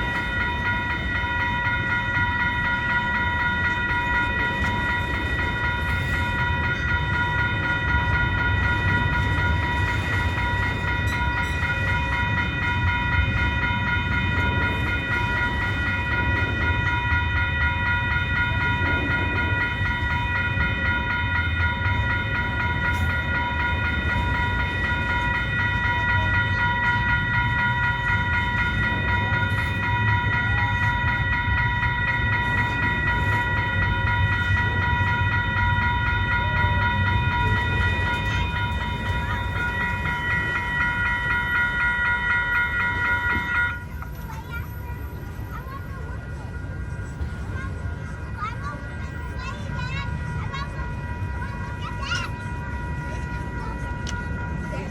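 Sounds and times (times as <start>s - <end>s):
freight train cars rumbling: 0.0s - 54.9s.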